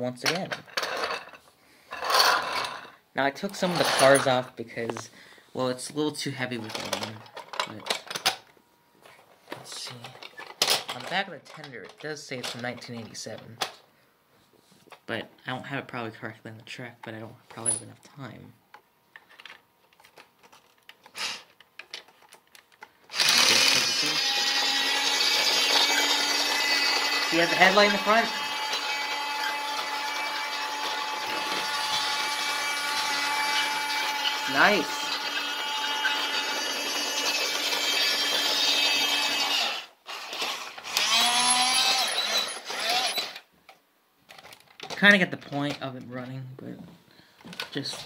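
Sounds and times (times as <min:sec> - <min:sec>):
toy train motor whirring: 0:01.9 - 0:02.9, 0:21.0 - 0:21.6, 0:23.1 - 0:43.5.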